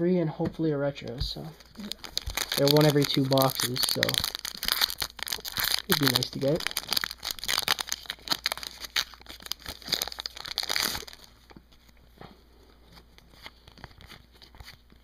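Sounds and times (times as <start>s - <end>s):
foil wrapper crinkling and tearing: 1.6s - 11.6s, 13.2s - 15.0s.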